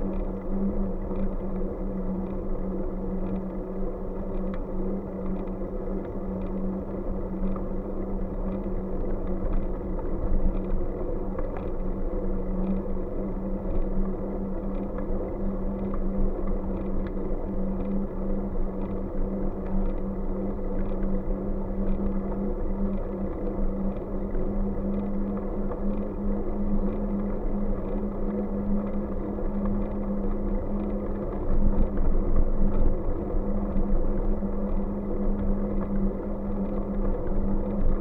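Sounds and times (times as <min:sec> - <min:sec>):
bike running hum and rumble: 0:00.0 - 0:38.0
faint light ticks: 0:04.2 - 0:06.6, 0:13.7 - 0:26.2.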